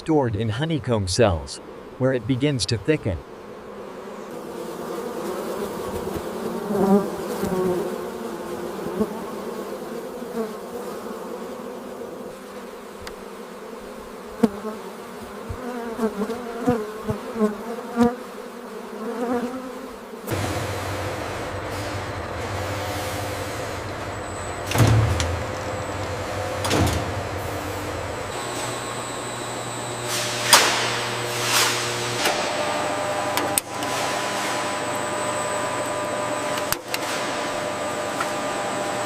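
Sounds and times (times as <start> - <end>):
honeybees buzzing: 0.0 - 39.0
low machine-like hum: 20.3 - 39.0.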